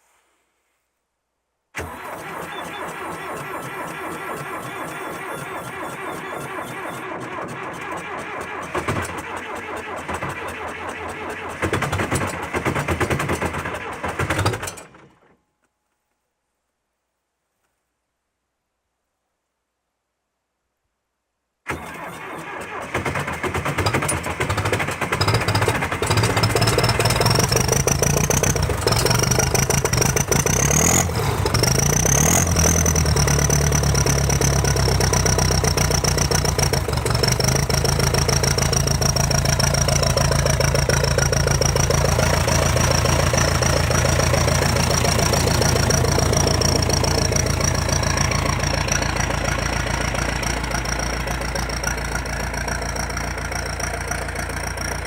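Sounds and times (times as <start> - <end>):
tractor engine idling: 1.8 - 15.3, 21.8 - 55.0.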